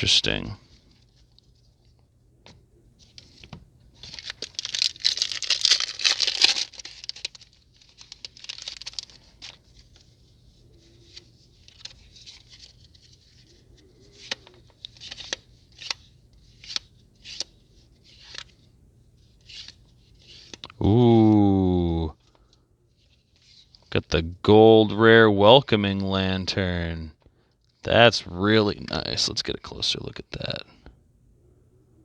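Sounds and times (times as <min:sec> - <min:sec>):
foil pack tearing and crinkling: 0:04.0 - 0:09.7.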